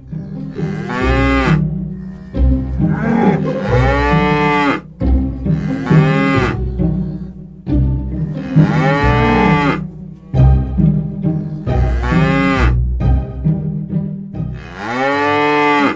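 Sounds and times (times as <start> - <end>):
cow mooing: 0.0 - 7.4, 8.1 - 10.0, 11.3 - 12.8, 14.6 - 15.9
background music with bass: 0.0 - 15.4.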